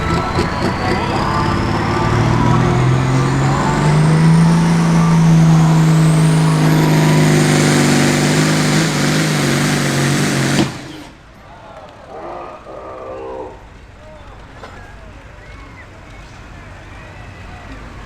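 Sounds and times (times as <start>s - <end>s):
high turbo whine: 0.0s - 11.4s
tractor diesel engine under load: 0.0s - 11.4s.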